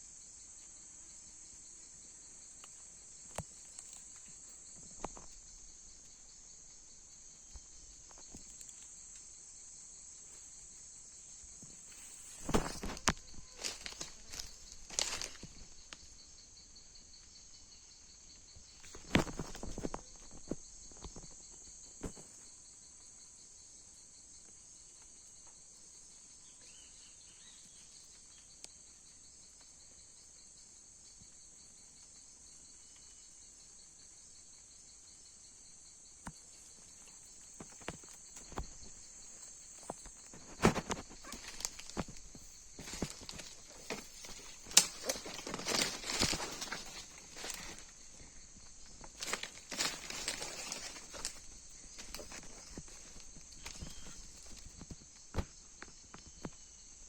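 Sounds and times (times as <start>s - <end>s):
high-pitched insect chorus: 0.0s - 57.0s
rustles and knocks: 11.6s - 15.8s, 18.8s - 21.4s, 36.2s - 56.6s.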